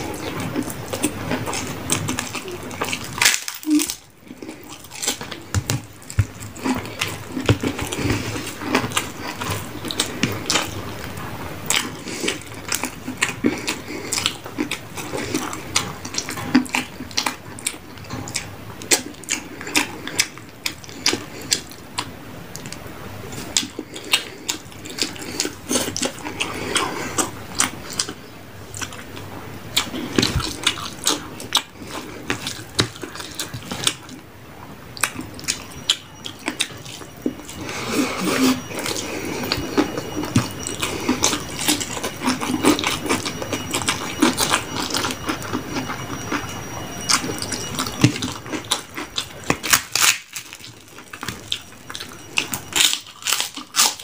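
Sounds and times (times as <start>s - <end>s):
wet chewing and mouth smacking: 0.0s - 54.0s.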